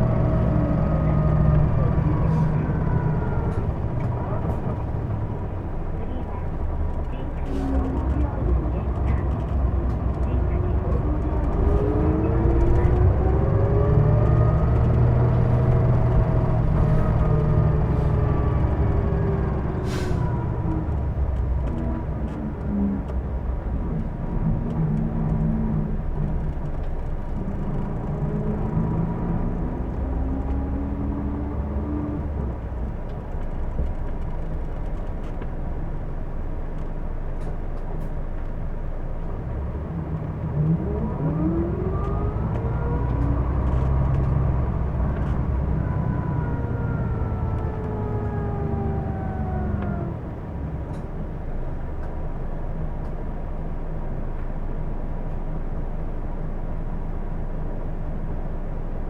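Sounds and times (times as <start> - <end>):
bus engine rumble: 0.0 - 59.0
drivetrain whine: 0.0 - 59.0
air brake hiss: 19.8 - 20.2.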